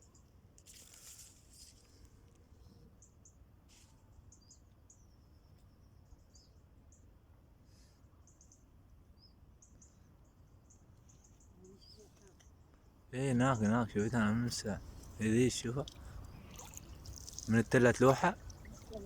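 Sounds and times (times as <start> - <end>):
faint high-pitched bird chirps: 2.5 - 12.9.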